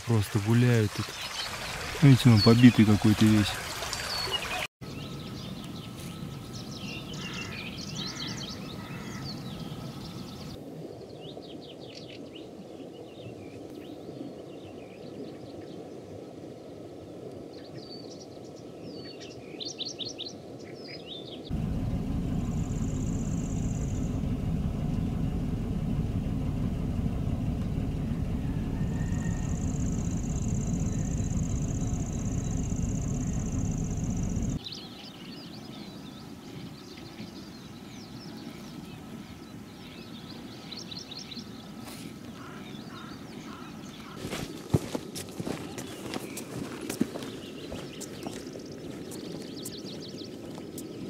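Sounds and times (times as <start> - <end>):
small songbirds chirping: 0.4 - 16.0, 17.5 - 51.0
steady low rumbling noise: 21.5 - 34.6.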